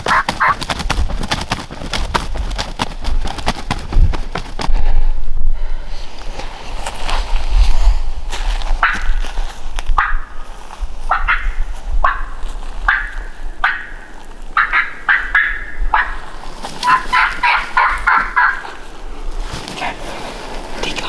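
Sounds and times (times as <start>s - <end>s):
wild turkey calling: 0.0s - 0.6s, 11.1s - 19.0s.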